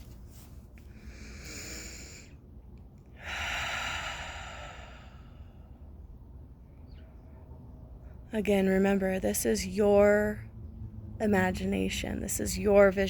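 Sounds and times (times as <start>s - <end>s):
woman breathing: 0.8s - 2.5s, 3.1s - 6.0s.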